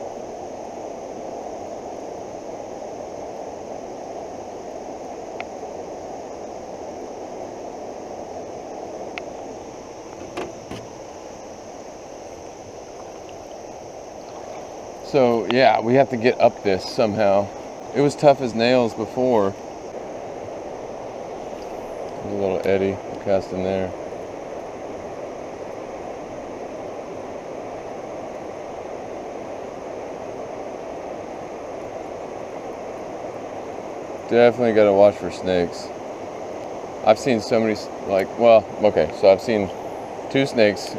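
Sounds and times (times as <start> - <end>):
floodwater rushing in creek: 0.0 - 40.9
faint high ticks: 9.1 - 9.3, 12.4 - 13.6
brief knocks: 10.2 - 10.9.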